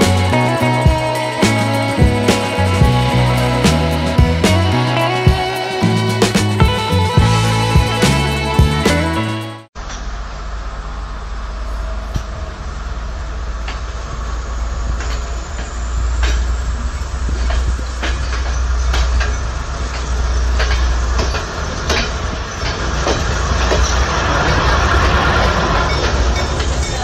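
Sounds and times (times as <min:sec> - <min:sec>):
train coaches rumbling past: 0:00.0 - 0:27.0
wheels clacking over rail joints: 0:11.9 - 0:27.0.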